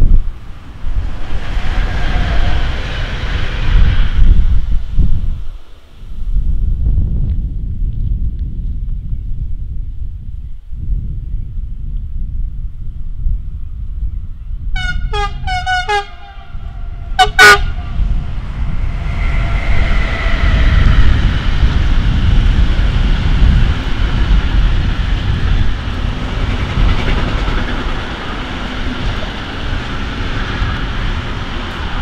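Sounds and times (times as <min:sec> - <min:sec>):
freight train rumbling past: 0:00.0 - 0:07.1, 0:14.7 - 0:32.0
locomotive horn blasts: 0:14.8 - 0:18.0
locomotive horn melodic notes: 0:14.8 - 0:18.0.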